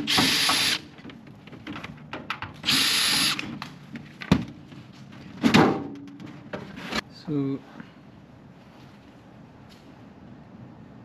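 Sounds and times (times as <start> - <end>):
cordless drill running: 0.0 - 0.8, 2.7 - 3.4.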